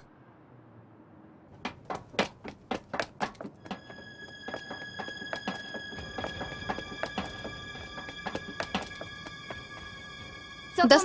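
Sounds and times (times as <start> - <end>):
steady held high tones: 3.5 - 11.0.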